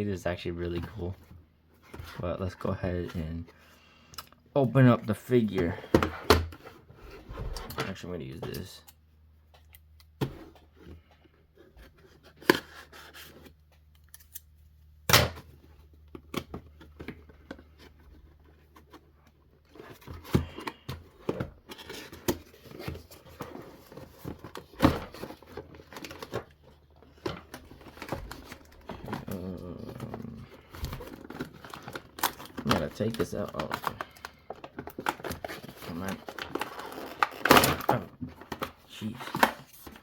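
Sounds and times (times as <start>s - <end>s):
packaging rustling: 16.2s - 40.0s.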